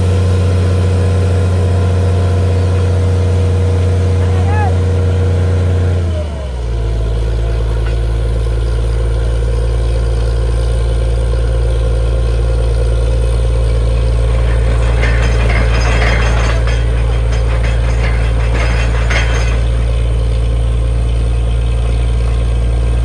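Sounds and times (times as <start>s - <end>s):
drilling rig engine running: 0.0s - 23.0s
metallic clanking: 2.3s - 9.6s, 13.0s - 23.0s.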